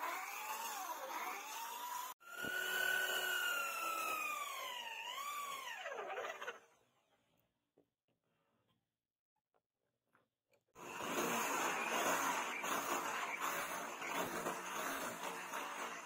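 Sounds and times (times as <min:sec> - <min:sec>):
tool grinding a knife: 0:10.8 - 0:16.0.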